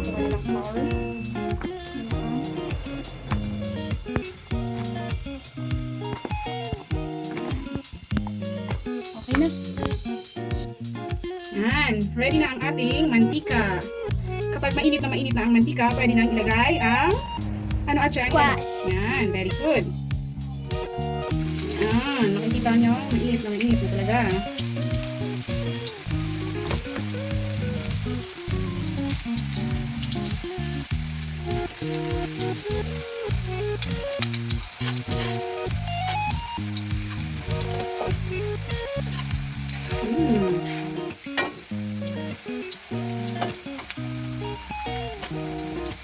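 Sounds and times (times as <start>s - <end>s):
background music: 0.0s - 46.0s
deep-frying sizzle in oil: 21.2s - 46.0s.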